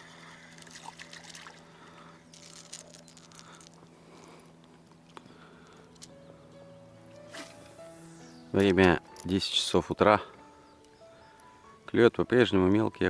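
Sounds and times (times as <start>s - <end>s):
water trickling and lapping: 0.0s - 3.7s.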